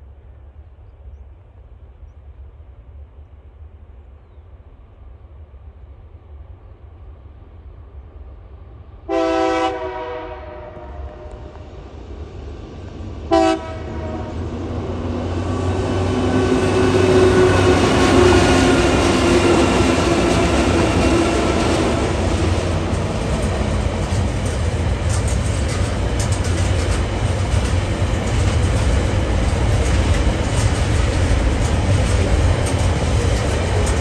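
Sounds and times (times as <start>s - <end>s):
diesel locomotive engines: 0.0s - 34.0s
train horn blasts: 9.1s - 11.7s, 13.3s - 14.6s, 15.7s - 22.1s
wagons rolling on rails: 15.3s - 34.0s.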